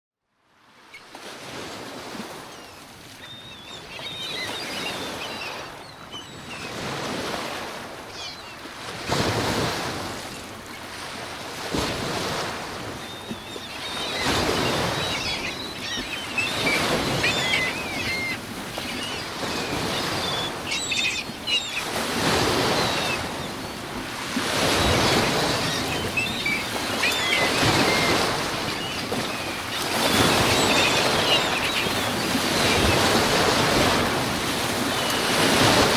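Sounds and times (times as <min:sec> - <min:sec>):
birds calling: 0:02.4 - 0:07.2, 0:08.0 - 0:08.8, 0:12.8 - 0:35.9
surf breaking in high wind: 0:11.0 - 0:35.9.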